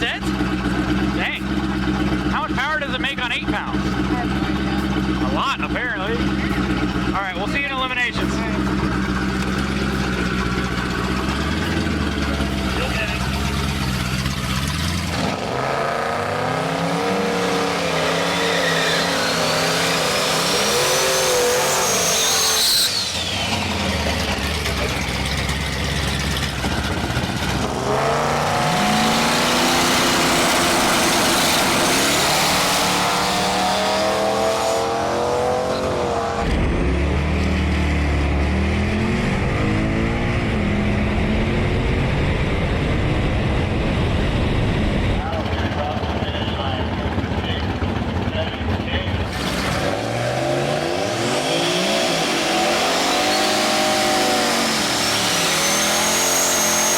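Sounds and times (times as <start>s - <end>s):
car engine idling and revving: 0.0s - 56.9s
turbo whistle: 20.7s - 23.4s.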